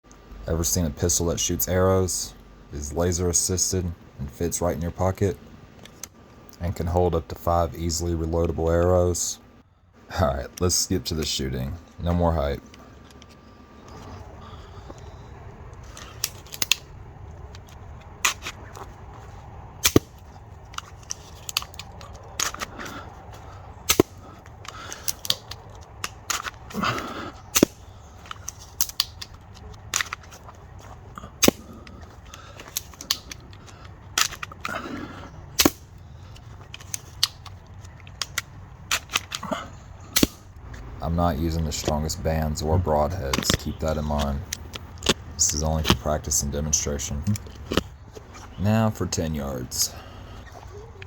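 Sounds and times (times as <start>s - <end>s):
crossbow shooting snaps and clacks: 15.8s - 18.8s, 19.8s - 23.0s, 23.8s - 34.8s, 35.6s - 39.5s, 40.1s - 40.6s.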